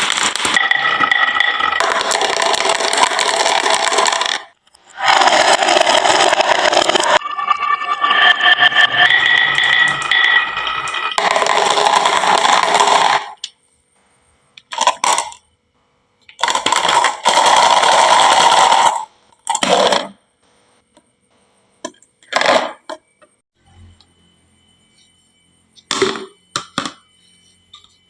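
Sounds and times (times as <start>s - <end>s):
marbles rolling down wooden run: 0.0s - 7.2s, 7.9s - 13.4s, 16.4s - 19.1s.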